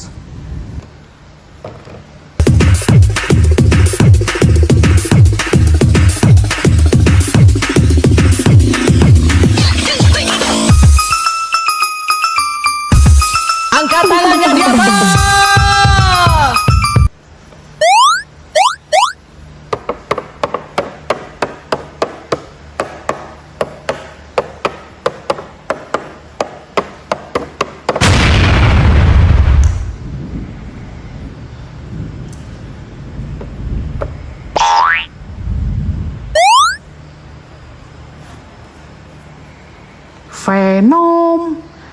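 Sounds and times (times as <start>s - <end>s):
fast electronic dance music: 2.4s - 11.1s, 13.0s - 17.1s
rising electronic sweeps: 17.8s - 19.2s, 34.6s - 36.8s
explosion effect burst: 28.0s - 30.3s.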